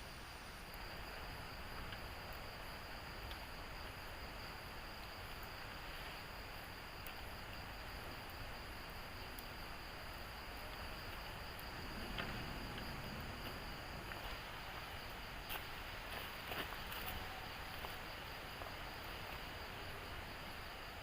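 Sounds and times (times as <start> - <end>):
background hiss: 0.0 - 21.0
insects buzzing: 0.0 - 21.0
faint clicks: 3.2 - 3.5.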